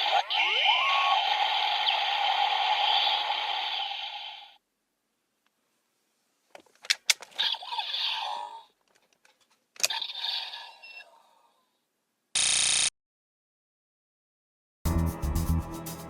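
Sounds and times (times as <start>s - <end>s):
plastic clicks: 6.5s - 7.5s.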